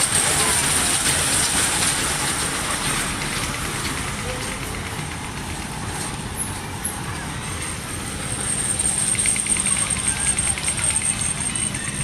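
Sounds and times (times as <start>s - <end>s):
ride train rumbling: 0.0s - 12.0s.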